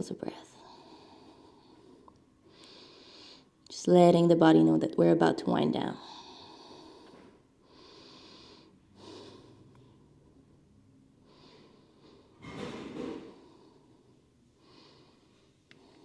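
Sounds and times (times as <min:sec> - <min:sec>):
deep breaths through nose: 0:00.6 - 0:03.6, 0:06.1 - 0:10.2.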